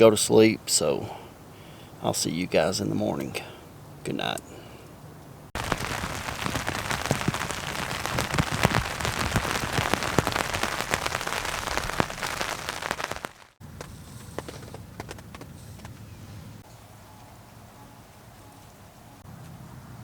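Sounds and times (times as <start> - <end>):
heavy rain hitting a tarp: 5.6 - 13.6
scattered light drops: 5.6 - 13.6.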